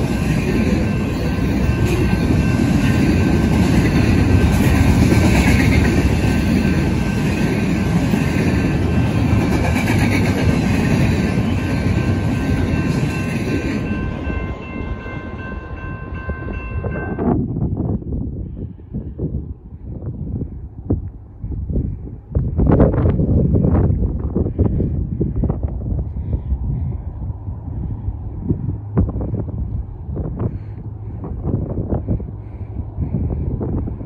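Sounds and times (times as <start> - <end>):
steel wheels rolling on rails: 0.0 - 17.4.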